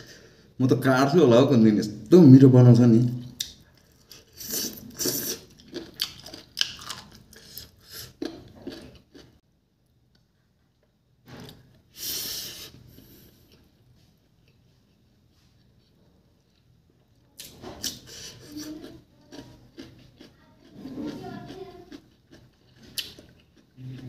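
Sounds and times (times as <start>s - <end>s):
wet crunching and chewing: 3.3s - 9.4s, 17.4s - 24.0s.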